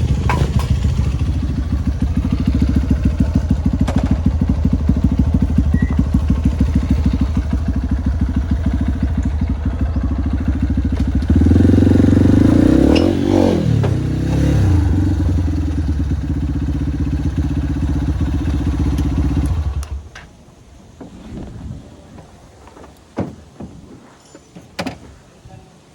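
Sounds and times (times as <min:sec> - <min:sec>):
motorcycle engine running: 0:00.0 - 0:20.1.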